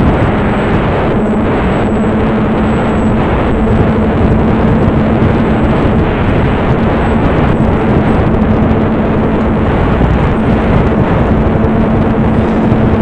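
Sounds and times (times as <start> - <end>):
faint steady hum: 0.0 - 13.0
wind buffeting microphone: 0.0 - 13.0.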